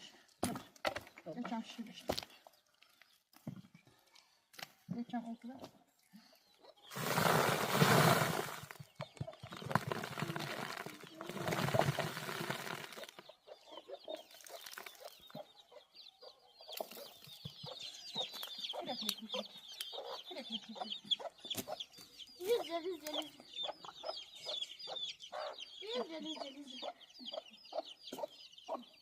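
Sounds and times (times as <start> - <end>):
chickens clucking: 6.4 - 29.0
rustling noise: 6.9 - 8.8, 9.6 - 13.2
high-pitched chick peeps: 13.0 - 29.0.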